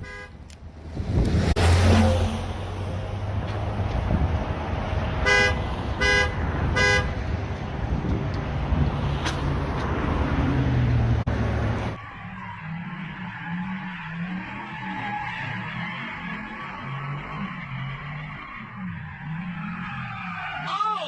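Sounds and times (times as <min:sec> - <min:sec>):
car horn honking: 0:00.0 - 0:00.4, 0:05.2 - 0:07.2
road and engine noise: 0:00.0 - 0:21.0.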